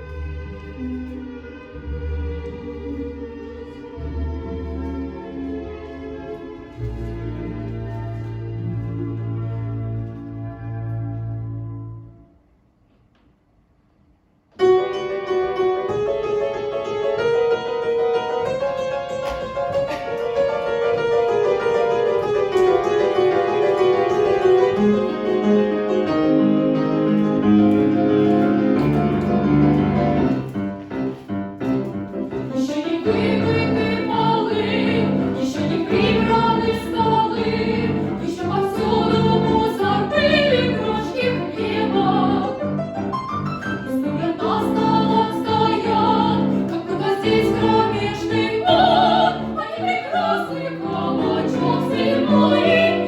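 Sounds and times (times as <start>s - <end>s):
piano accompaniment: 0.0s - 12.6s, 14.6s - 53.0s
operetta singing voices: 32.5s - 42.8s, 44.0s - 53.0s.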